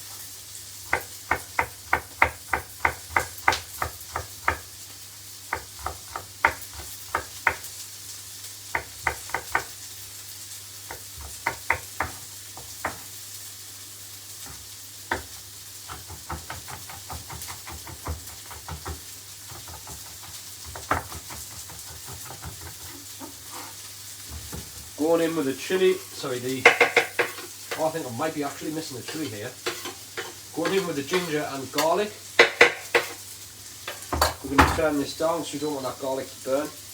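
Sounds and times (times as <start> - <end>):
pan sizzling: 0.0 - 36.9
knife chopping on cutting board: 0.9 - 4.7, 5.5 - 7.7, 8.8 - 9.7, 10.9 - 13.1, 14.4 - 23.7, 24.3 - 24.8, 26.6 - 28.0, 29.1 - 33.2.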